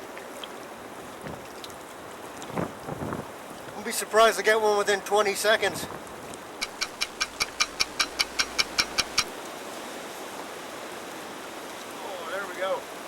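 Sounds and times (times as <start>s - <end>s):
water: 0.0s - 13.0s
wind hiss: 5.4s - 13.0s
rapid clock-like ticking: 6.6s - 9.3s.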